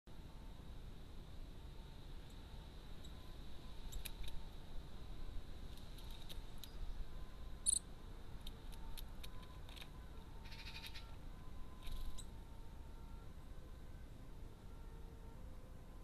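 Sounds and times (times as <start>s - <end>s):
faint garden ambience: 0.1s - 16.0s
small clicks: 3.9s - 4.4s, 5.7s - 6.8s, 8.4s - 10.0s
high-pitched bird call: 7.6s - 7.9s, 10.4s - 11.2s, 11.8s - 12.4s.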